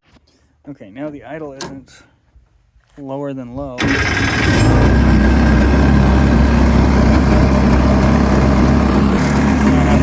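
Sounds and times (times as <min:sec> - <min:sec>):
boat engine idling loudly: 0:03.8 - 0:10.0.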